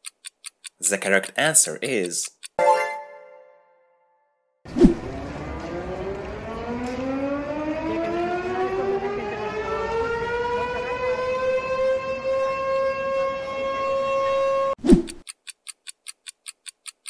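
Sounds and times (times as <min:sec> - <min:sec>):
air raid siren wailing: 0:05.0 - 0:14.8.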